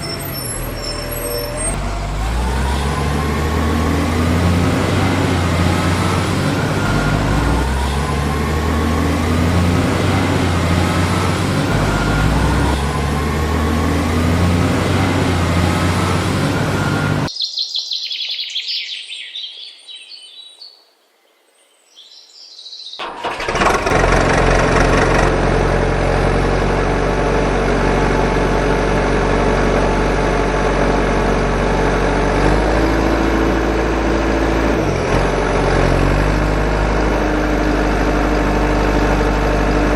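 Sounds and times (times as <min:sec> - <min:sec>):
vehicle engine running: 0:00.0 - 0:17.3, 0:23.0 - 0:39.9
high bird chirps: 0:17.3 - 0:20.8.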